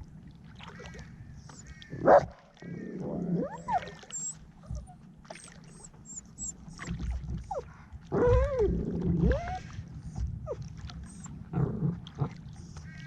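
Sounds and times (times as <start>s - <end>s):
dog whining: 3.4s - 7.6s, 8.2s - 9.6s, 10.5s - 11.3s.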